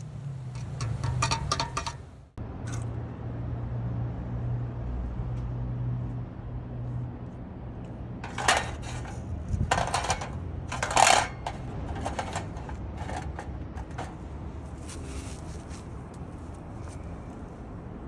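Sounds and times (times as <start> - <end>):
thin metal pieces clattering: 8.2 - 14.2.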